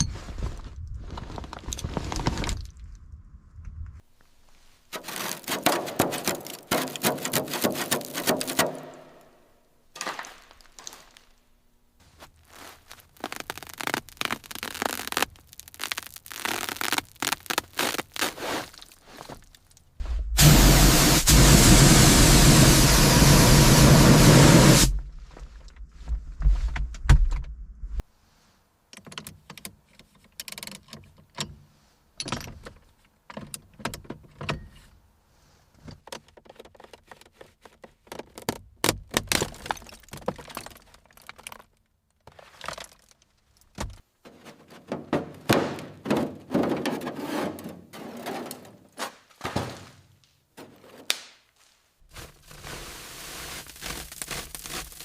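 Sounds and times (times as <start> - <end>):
low rumble: 20.0 - 21.5.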